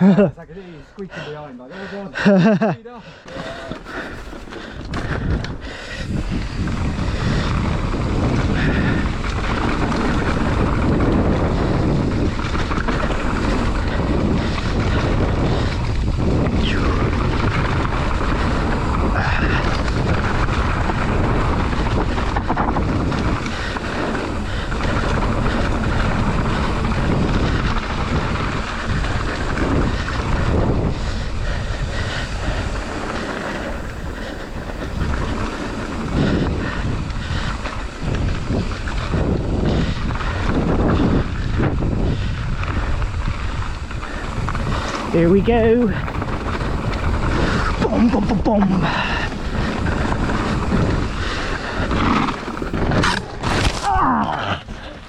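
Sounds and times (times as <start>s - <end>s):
mountain bike rumble and rattle: 0.0s - 55.0s
wind on microphone: 2.2s - 55.0s
person speaking: 45.0s - 46.0s, 47.8s - 49.0s.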